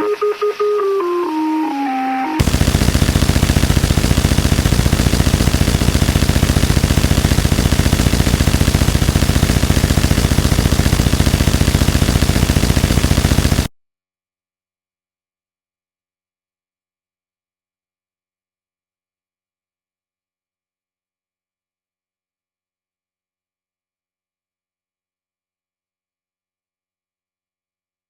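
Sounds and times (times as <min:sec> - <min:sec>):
descending electronic tones: 0:02.4 - 0:13.7
rapidly pulsing noise wall: 0:02.4 - 0:13.7.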